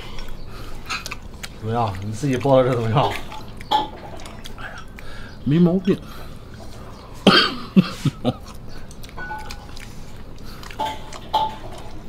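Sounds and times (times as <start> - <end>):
person coughing: 7.2 - 8.3.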